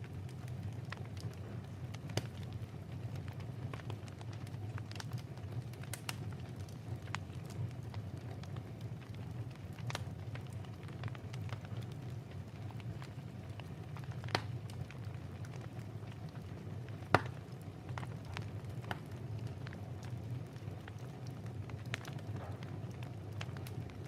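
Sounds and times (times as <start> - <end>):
wood fire crackling: 0.0 - 24.0
sharp pops of fire: 0.9 - 2.6, 3.3 - 7.7, 14.0 - 15.8, 16.9 - 19.8, 21.8 - 24.0.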